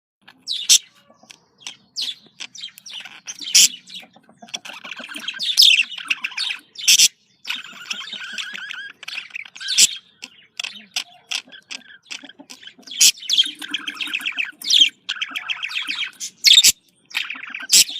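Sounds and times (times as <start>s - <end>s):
budgerigars chattering: 0.2s - 17.9s.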